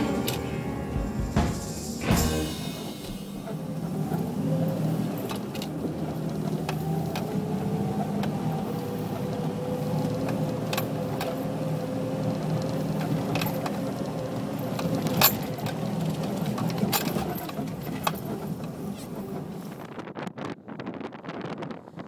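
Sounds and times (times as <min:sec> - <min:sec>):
car engine running steadily: 0:00.0 - 0:19.8
body clicks and rattles: 0:12.3 - 0:19.9.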